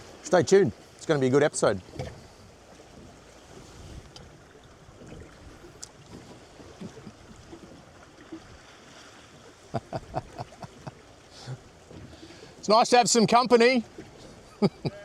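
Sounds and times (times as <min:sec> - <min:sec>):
water rushing past hull: 0:00.0 - 0:15.0
wind on microphone: 0:03.6 - 0:04.2.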